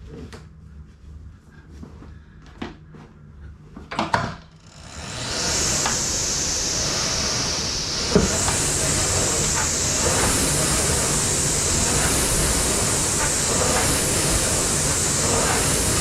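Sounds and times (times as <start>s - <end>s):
flywheel fan whooshing hiss: 4.6s - 16.0s
rowing machine clacks: 5.0s - 16.0s.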